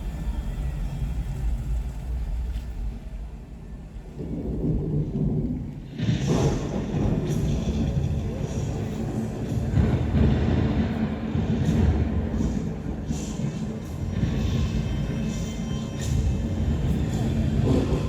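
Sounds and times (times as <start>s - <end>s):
deep thunder-like rumble: 0.0s - 13.2s.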